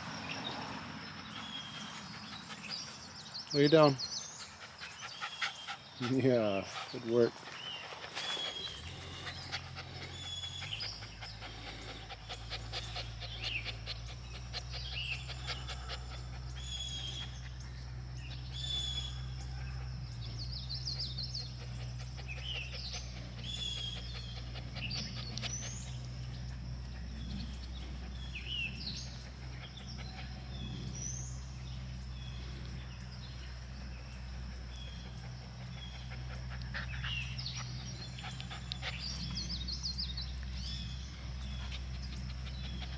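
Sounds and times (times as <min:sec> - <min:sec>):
small birds chirping: 0:00.0 - 0:42.9
steady low rumble: 0:04.3 - 0:42.9.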